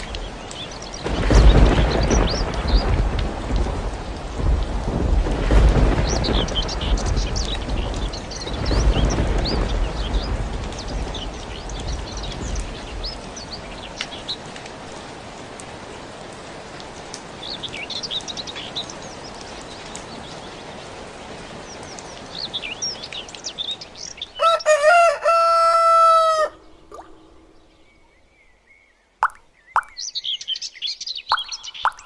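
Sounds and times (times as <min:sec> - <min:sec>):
small birds chirping: 0:21.6 - 0:32.0
rooster crowing: 0:24.4 - 0:26.6.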